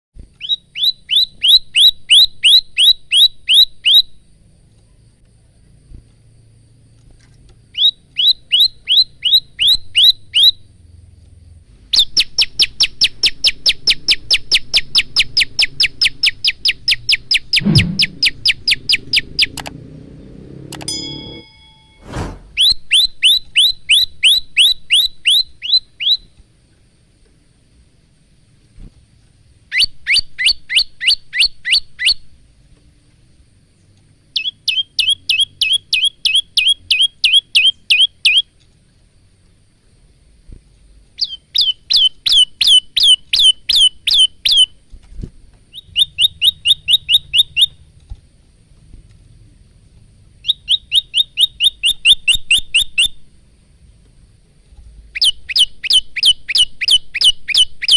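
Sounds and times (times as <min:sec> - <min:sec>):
bird singing sharp repeated notes: 0:00.4 - 0:04.2, 0:07.7 - 0:10.6, 0:12.0 - 0:19.7, 0:20.8 - 0:26.3, 0:34.4 - 0:38.5, 0:41.2 - 0:44.7, 0:45.7 - 0:47.8, 0:50.4 - 0:53.2, 0:55.2 - 0:57.9.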